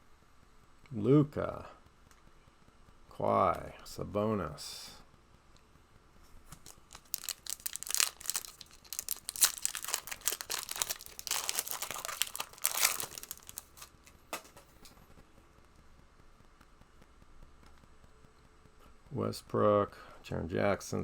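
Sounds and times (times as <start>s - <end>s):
plastic wrapper crinkling and tearing: 6.5s - 14.7s.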